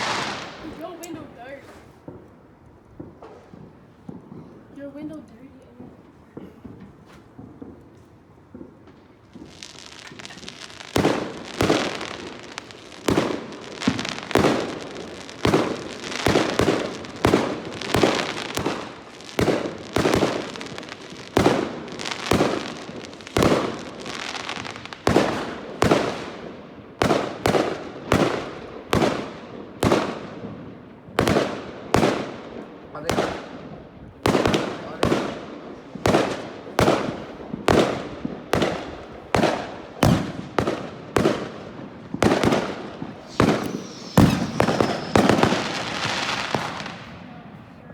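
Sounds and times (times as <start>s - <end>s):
fireworks hissing: 0.0s - 2.0s, 41.9s - 47.3s
fireworks bangs with crackle: 0.0s - 47.9s.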